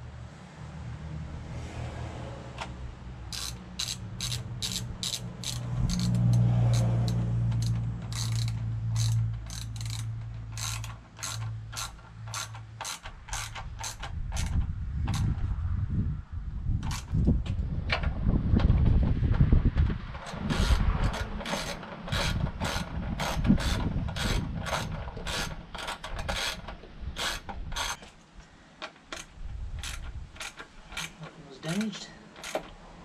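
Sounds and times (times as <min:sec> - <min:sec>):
ratchet tool clicking: 0:03.3 - 0:15.3, 0:20.2 - 0:28.1, 0:29.1 - 0:32.8.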